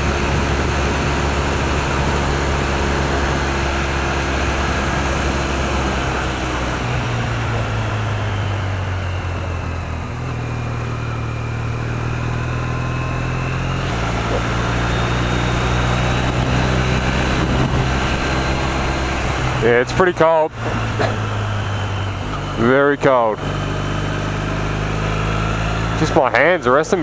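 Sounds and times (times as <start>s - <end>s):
wind rushing over microphone: 0.0s - 10.5s, 13.4s - 22.6s
motorcycle engine running: 0.0s - 27.0s.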